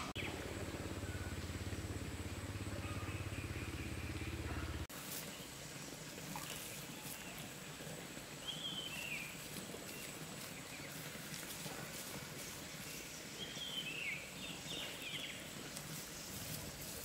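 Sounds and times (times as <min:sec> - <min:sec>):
low steady hum: 0:00.0 - 0:17.0
bird chirps: 0:00.1 - 0:05.5.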